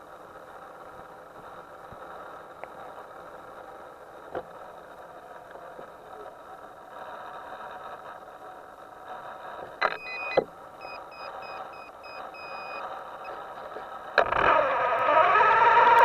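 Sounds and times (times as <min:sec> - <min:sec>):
steady background hum: 0:00.0 - 0:16.0
short electronic beeps: 0:09.8 - 0:13.4.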